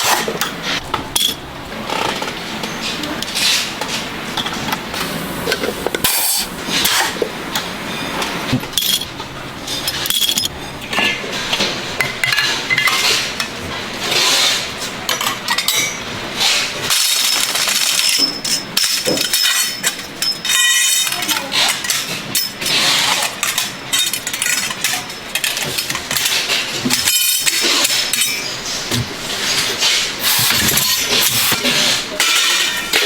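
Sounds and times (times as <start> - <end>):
metal parts knocking and clinking: 9.9 - 10.5
metal scraping: 29.4 - 33.0.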